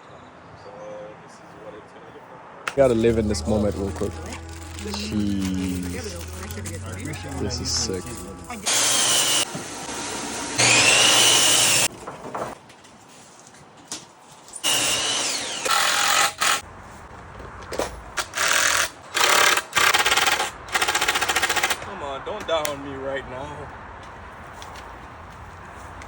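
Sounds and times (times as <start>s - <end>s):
power drill whining: 8.7s - 11.9s, 14.6s - 16.6s.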